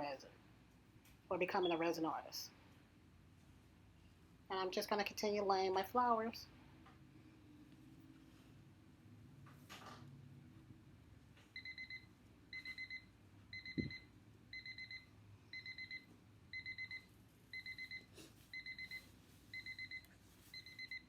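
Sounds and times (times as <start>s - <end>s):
electronic alarm beeping: 11.6s - 21.0s.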